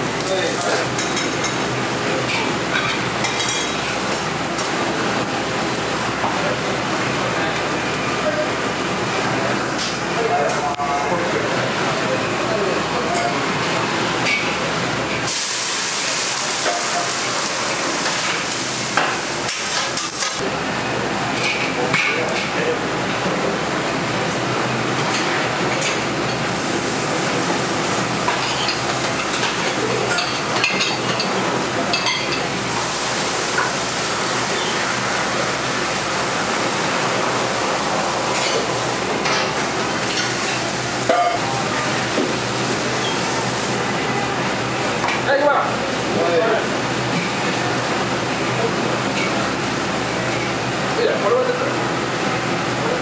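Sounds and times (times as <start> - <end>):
restaurant background noise: 0.0 - 53.0
dishes and utensils clinking: 0.2 - 4.8, 28.3 - 32.6, 33.5 - 41.4
loud steady hiss: 15.2 - 20.8, 32.4 - 45.1.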